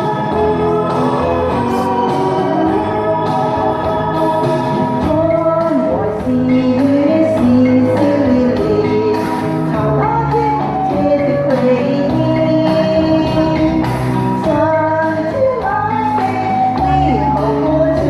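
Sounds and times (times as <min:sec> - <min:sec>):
instrumental backing music: 0:00.0 - 0:18.0
woman singing slow melody: 0:05.0 - 0:18.0.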